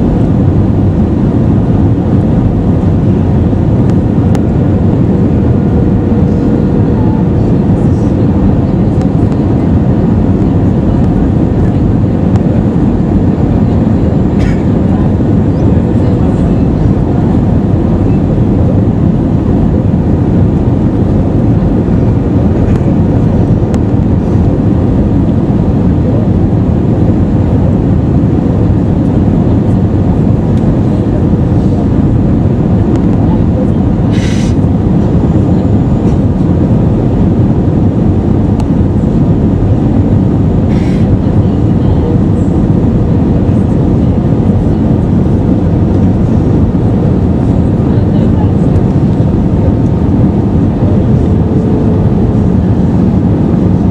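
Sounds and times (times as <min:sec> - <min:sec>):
airplane cabin engine rush: 0:00.0 - 0:53.9
faint steady hum: 0:00.0 - 0:53.9.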